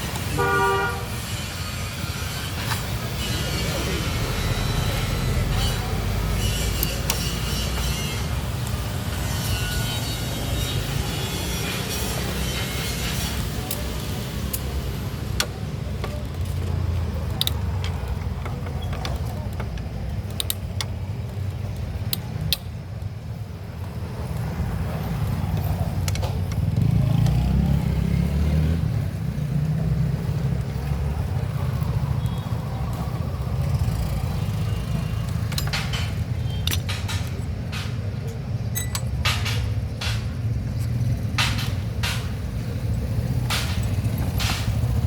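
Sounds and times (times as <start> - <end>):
vehicle engine rumble: 0.0 - 45.0
metallic tool clicks: 35.2 - 42.6.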